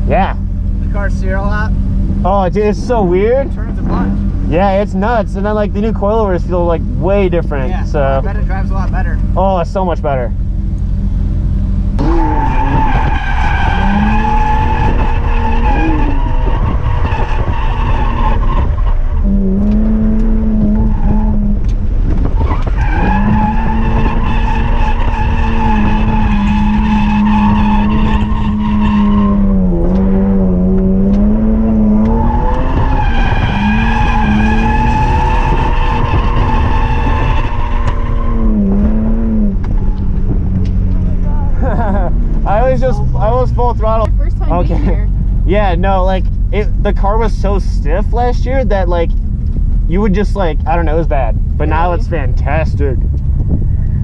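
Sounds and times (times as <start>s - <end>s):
car engine at high revs: 0.0s - 54.0s
tyres squealing: 30.8s - 39.1s.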